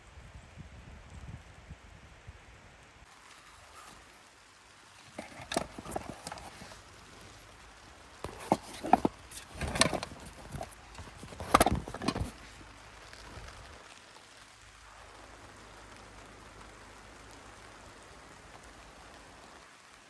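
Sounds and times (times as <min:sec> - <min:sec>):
faint steady background noise: 0:00.0 - 0:20.0
knocks and clatters: 0:05.1 - 0:07.6, 0:08.2 - 0:12.6.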